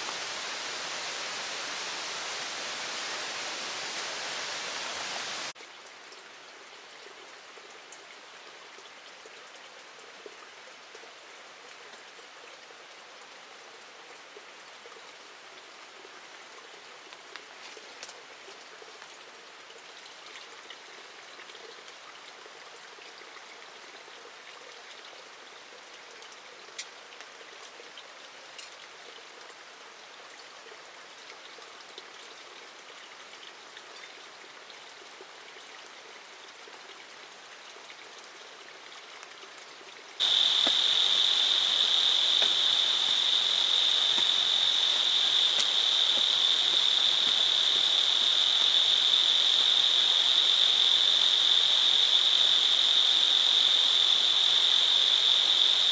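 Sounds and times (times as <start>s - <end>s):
steady rain falling: 0.0s - 55.9s
single raindrops landing close: 40.2s - 51.4s
shrill insect chorus: 40.2s - 55.9s.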